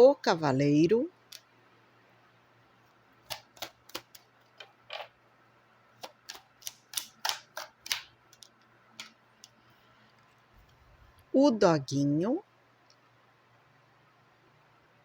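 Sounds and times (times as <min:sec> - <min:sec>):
cards clicking and snapping: 0:03.2 - 0:04.3, 0:06.0 - 0:09.6.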